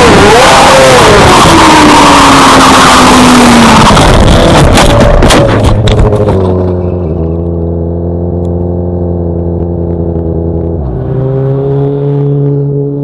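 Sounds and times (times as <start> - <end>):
motorcycle engine running: 4.4 - 13.0.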